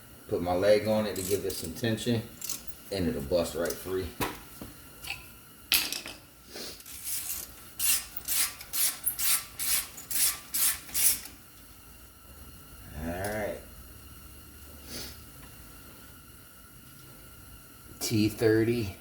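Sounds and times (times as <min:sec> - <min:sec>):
ratchet wrench clicking: 0:01.2 - 0:01.7, 0:02.4 - 0:02.7, 0:06.8 - 0:11.3.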